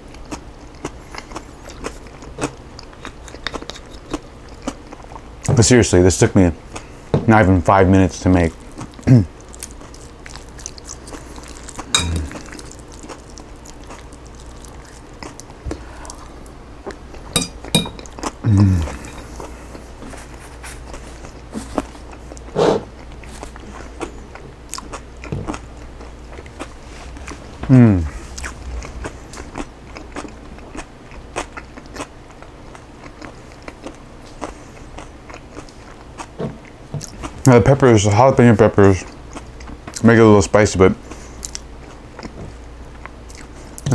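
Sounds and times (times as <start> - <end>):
chewing with wet mouth clicks: 0.0 - 5.4, 8.4 - 17.3, 20.8 - 27.2, 29.6 - 37.4, 41.4 - 43.9
low falling hum from person: 0.0 - 40.0
utensil clinking against a dish: 11.8 - 12.7, 17.3 - 19.5.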